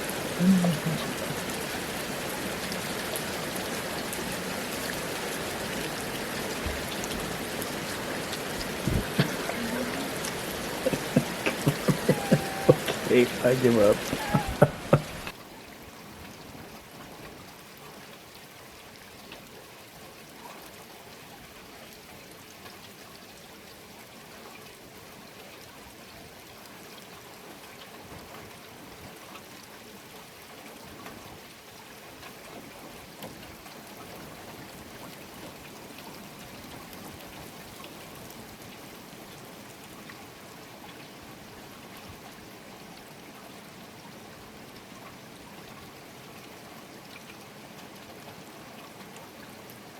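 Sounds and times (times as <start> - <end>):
water trickling: 0.0 - 23.5
steady rain falling: 0.0 - 49.9.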